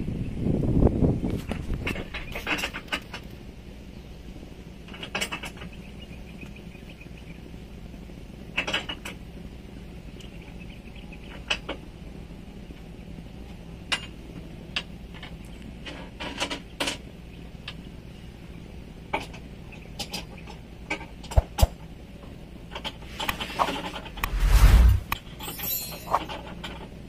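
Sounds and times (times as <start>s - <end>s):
steady low hum: 22.4s - 25.2s
tools and metal parts clinking: 25.4s - 26.8s.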